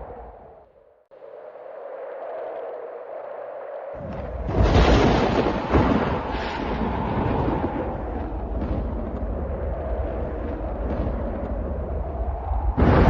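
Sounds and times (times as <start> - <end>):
storm wind: 0.0 - 13.0
thunder clap and rolling rumble: 4.0 - 13.0.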